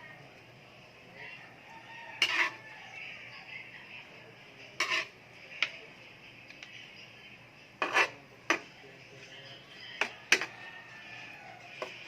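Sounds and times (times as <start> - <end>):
cutlery clinking on a plate: 2.2 - 2.6, 10.0 - 10.6.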